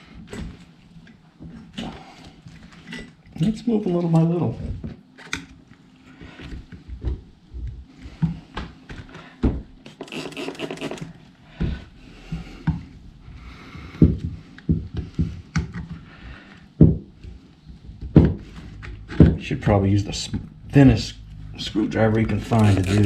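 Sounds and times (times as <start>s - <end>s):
screwdriver scraping under rubber grip: 10.0s - 11.1s, 22.3s - 23.0s.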